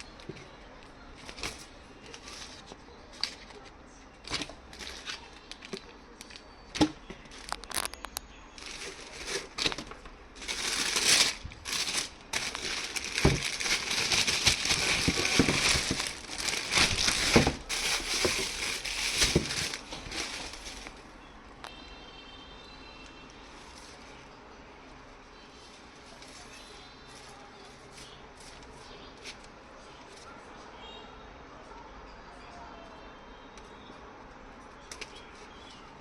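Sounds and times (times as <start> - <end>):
packaging crinkling and crumpling: 1.2 - 21.1
taps and rustles: 9.2 - 21.0.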